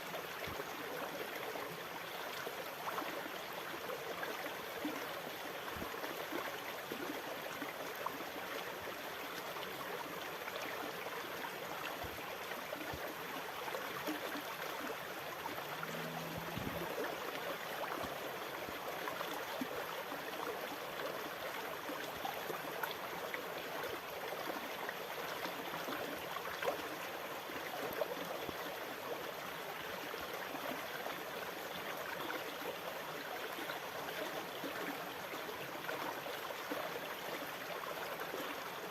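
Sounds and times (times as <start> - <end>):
rushing trickling water: 0.2 - 38.9
brief low hum: 15.7 - 17.1.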